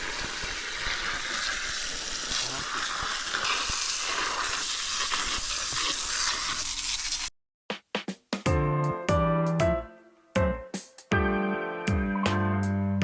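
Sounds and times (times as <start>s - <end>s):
wood fire crackling: 0.0s - 7.3s.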